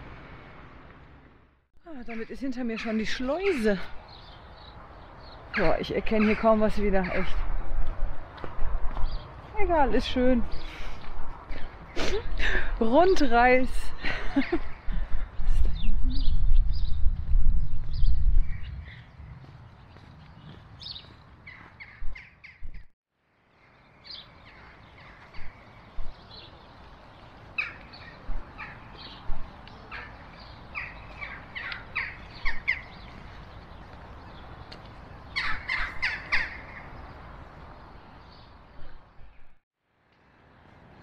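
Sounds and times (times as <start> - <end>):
birds calling: 2.0 - 7.6, 18.0 - 22.9, 23.5 - 39.6.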